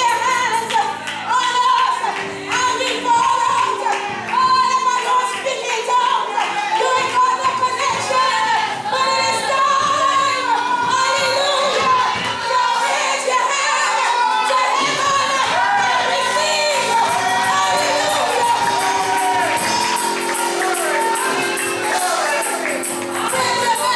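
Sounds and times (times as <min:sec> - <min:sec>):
women singing gospel: 0:00.0 - 0:23.9
instrumental backing: 0:14.9 - 0:23.9.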